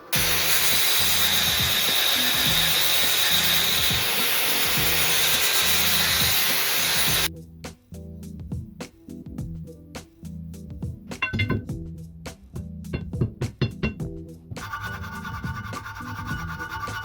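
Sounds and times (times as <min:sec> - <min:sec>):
power tool grinding metal: 0:00.1 - 0:07.3.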